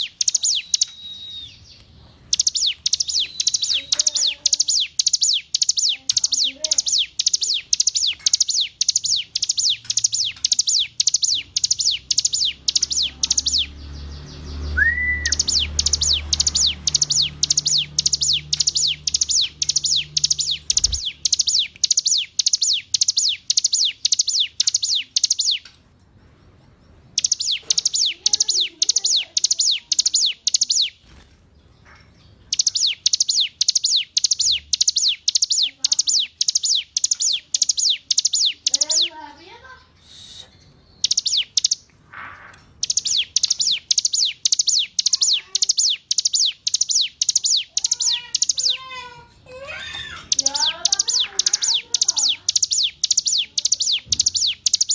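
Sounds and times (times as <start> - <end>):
bird singing downward-slurred notes: 0.0 - 25.6, 27.2 - 31.0, 42.8 - 48.9, 49.8 - 54.9.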